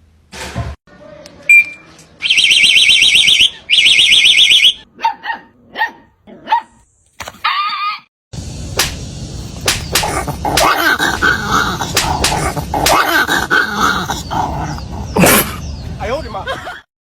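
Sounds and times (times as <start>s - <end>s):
warbling electronic alarm: 1.5s - 4.8s
dog barking: 5.0s - 6.8s.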